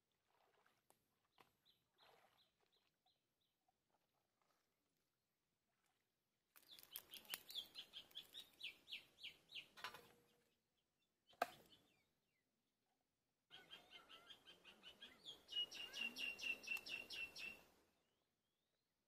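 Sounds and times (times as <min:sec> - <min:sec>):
bird chirping: 0:06.6 - 0:12.4, 0:13.5 - 0:17.7.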